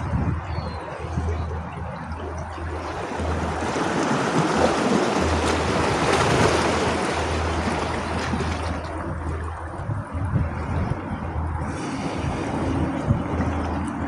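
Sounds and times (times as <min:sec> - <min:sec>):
steady low rumble: 0:00.0 - 0:14.0
sea wave surging in: 0:02.6 - 0:09.2.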